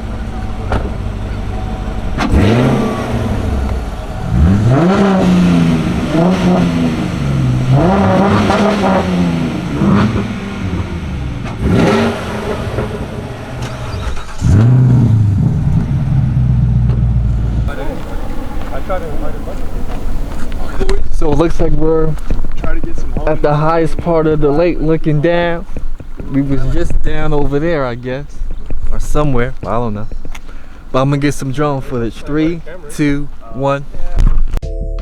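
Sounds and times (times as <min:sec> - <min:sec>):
steady cruising engine hum: 0:00.0 - 0:14.5, 0:15.2 - 0:21.0
car engines accelerating: 0:00.0 - 0:34.2.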